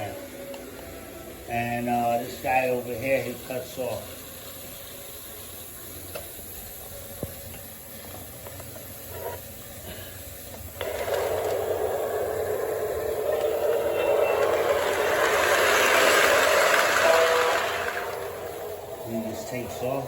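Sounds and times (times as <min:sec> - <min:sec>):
model train hissing rush: 0:00.0 - 0:20.0.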